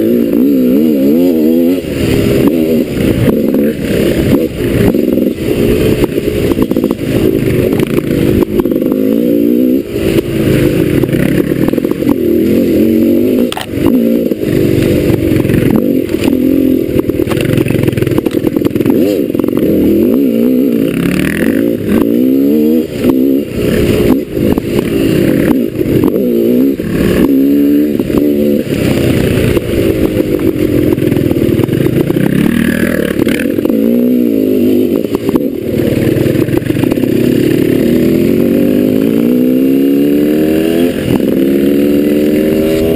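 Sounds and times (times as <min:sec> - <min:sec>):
motorcycle engine revving: 0:00.0 - 0:42.9
bike knocks and clatter: 0:17.2 - 0:19.2.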